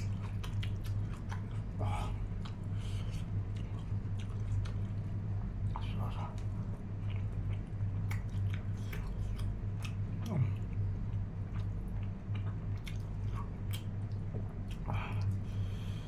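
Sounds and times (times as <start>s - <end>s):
person chewing food: 0.0s - 16.0s
steady low hum: 0.0s - 16.0s.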